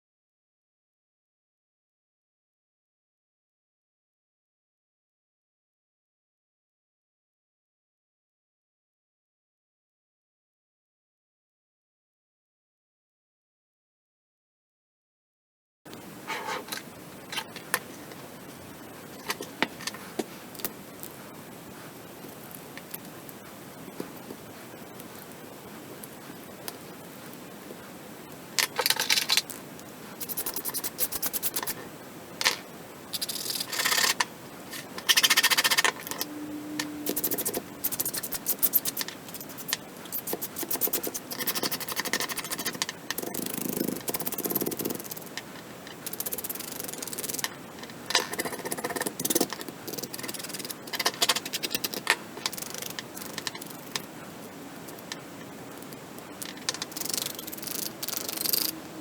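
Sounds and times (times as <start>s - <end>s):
plastic parts scraping and clicking: 28.6s - 29.6s, 30.2s - 31.8s, 33.2s - 54.1s, 55.8s - 58.8s
brief hum: 36.0s - 37.9s.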